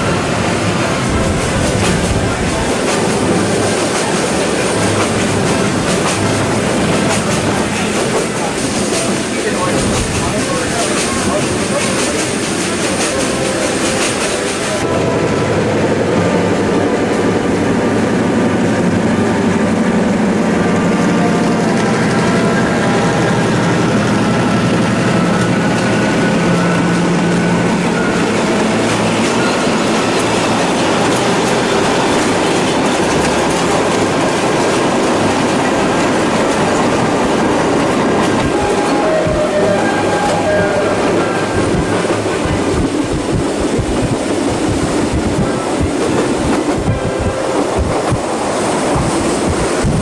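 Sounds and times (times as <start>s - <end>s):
train wheels rumbling on rails: 0.0s - 50.0s
clickety-clack of rail joints: 0.2s - 14.9s, 25.2s - 50.0s.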